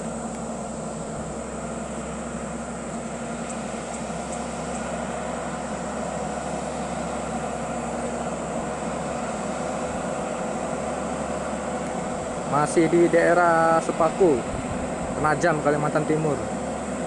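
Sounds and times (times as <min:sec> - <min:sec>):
truck diesel engine droning: 0:00.0 - 0:17.0.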